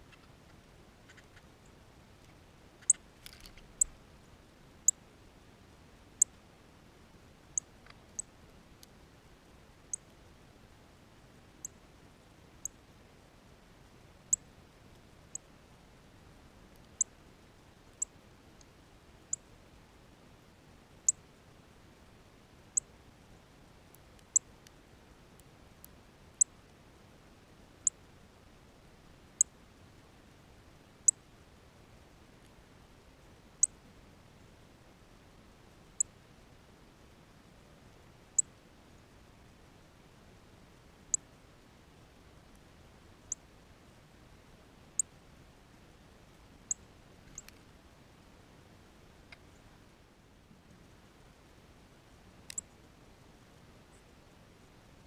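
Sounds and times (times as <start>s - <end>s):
small bird chip calls: 0.0s - 1.6s, 2.2s - 4.0s
faint steady hiss: 0.0s - 55.0s.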